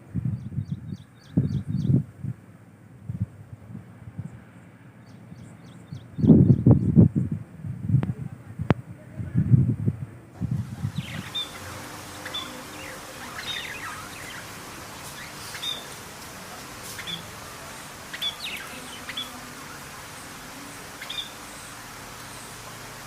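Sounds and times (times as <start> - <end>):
birds chirping: 5.0 - 7.0, 10.4 - 23.0
steady background hiss: 10.1 - 23.0.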